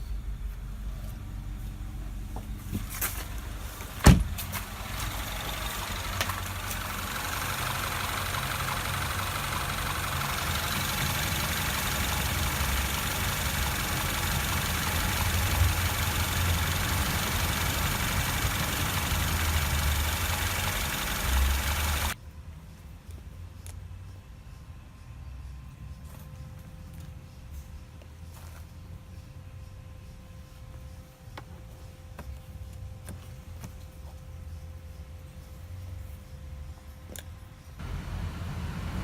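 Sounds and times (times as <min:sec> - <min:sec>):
car engine idling: 0:00.2 - 0:22.2, 0:37.8 - 0:39.0.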